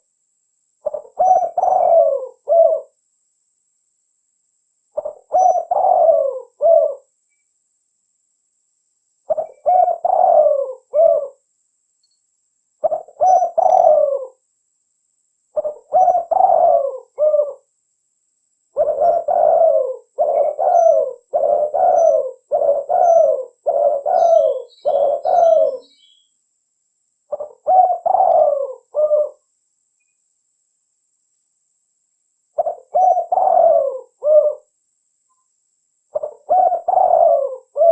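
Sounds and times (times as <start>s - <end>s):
dove cooing: 0.8s - 3.0s, 5.0s - 7.1s, 9.3s - 11.4s, 12.8s - 14.4s, 15.6s - 17.7s, 18.8s - 26.2s, 27.3s - 29.5s, 32.6s - 34.7s, 36.1s - 37.9s
small bird chirping: 0.8s - 3.0s, 4.9s - 7.6s, 8.7s - 14.5s, 15.5s - 17.7s, 18.7s - 26.4s, 27.2s - 30.4s, 32.5s - 37.9s.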